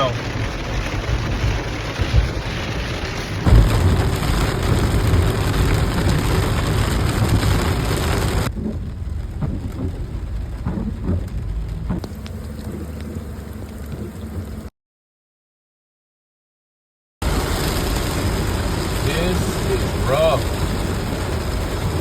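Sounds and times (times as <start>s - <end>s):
heavy rain pouring: 0.0s - 14.7s, 17.2s - 22.0s
low rumble: 0.2s - 14.7s.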